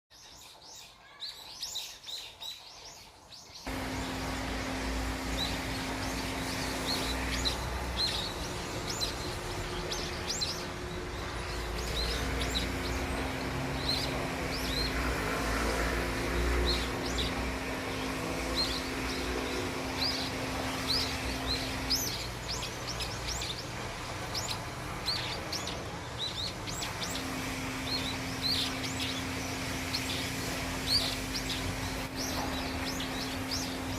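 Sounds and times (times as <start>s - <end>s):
small birds chirping: 0.1s - 33.9s
low hum: 3.7s - 25.5s.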